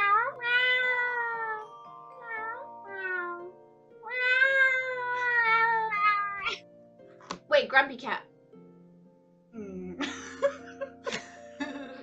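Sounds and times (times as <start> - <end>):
background music: 0.0 - 12.0
women imitating cat meows: 4.1 - 6.6.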